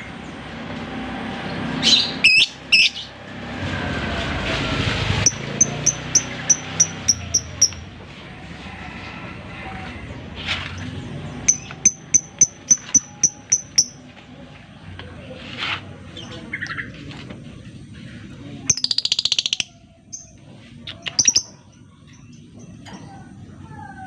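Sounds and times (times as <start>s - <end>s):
lovebird sharp high chirps: 1.8s - 3.1s, 5.2s - 7.8s, 11.5s - 14.0s.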